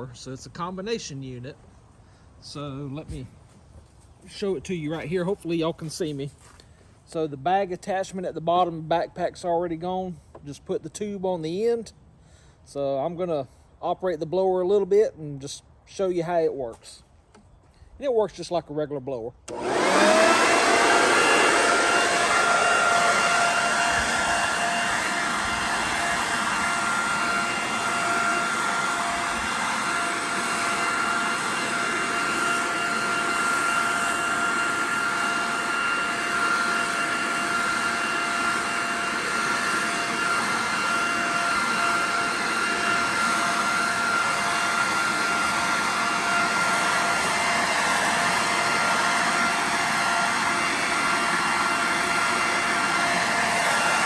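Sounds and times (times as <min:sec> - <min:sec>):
leaf blower running: 0:01.8 - 0:09.1, 0:19.5 - 0:54.0.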